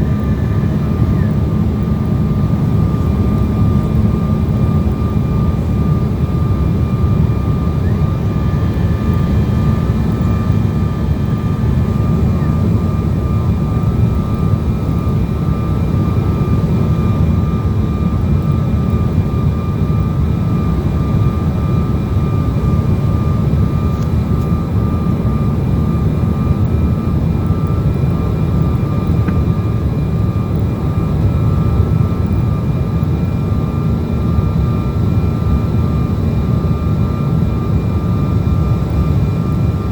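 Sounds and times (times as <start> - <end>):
faint high whine: 0.0 - 35.0
jet engines roaring: 0.0 - 39.9.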